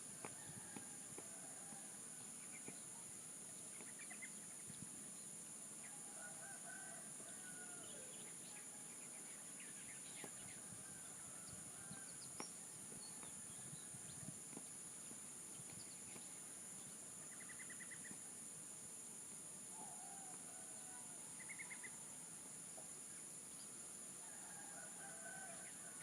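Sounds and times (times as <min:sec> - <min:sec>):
faint rooster crowing: 0:00.1 - 0:02.9, 0:05.8 - 0:09.4, 0:10.1 - 0:14.4, 0:19.7 - 0:22.4, 0:24.2 - 0:26.0.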